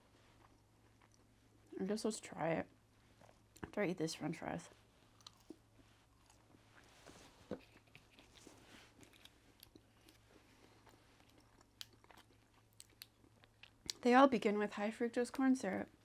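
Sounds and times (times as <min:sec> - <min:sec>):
chewing fries: 0:00.1 - 0:01.8, 0:04.9 - 0:14.1.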